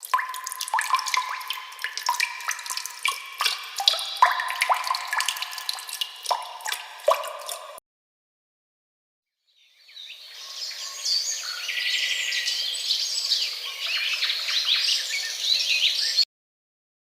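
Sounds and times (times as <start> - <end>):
water drops plinking: 0.0 - 7.8.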